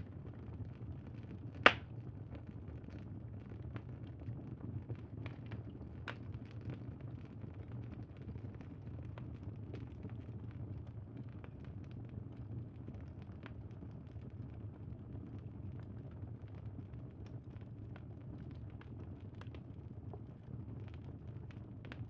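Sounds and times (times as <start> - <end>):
campfire crackling: 1.6 - 1.8.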